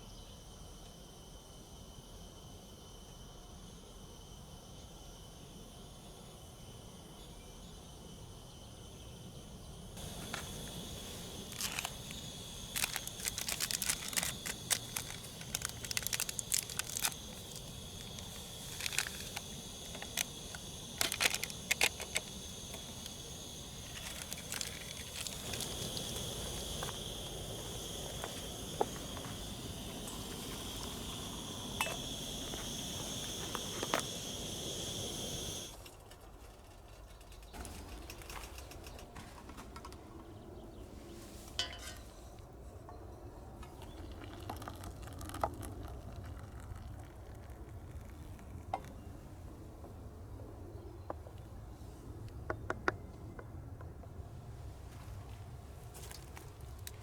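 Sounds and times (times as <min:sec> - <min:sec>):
sharp crackling clicks: 0:10.0 - 0:35.7.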